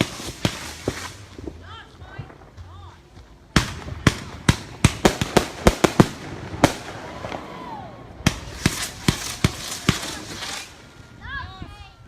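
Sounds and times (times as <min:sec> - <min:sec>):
fireworks bangs: 0:00.0 - 0:01.6, 0:03.5 - 0:11.2.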